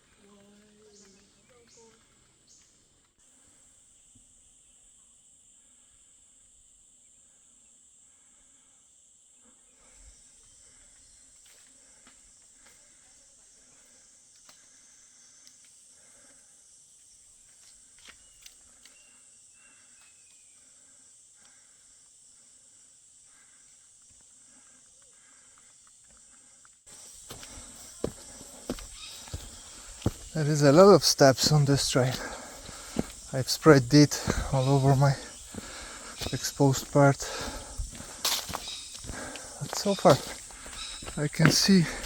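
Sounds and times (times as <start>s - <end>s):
high-pitched insect drone: 13.0s - 42.0s.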